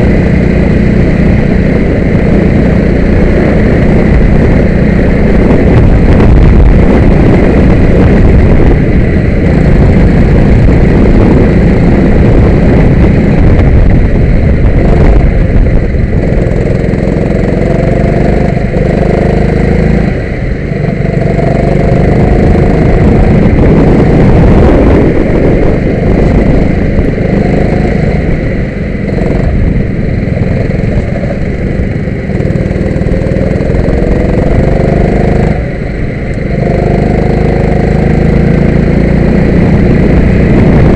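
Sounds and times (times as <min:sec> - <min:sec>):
go-kart engine accelerating: 0:16.2 - 0:40.9.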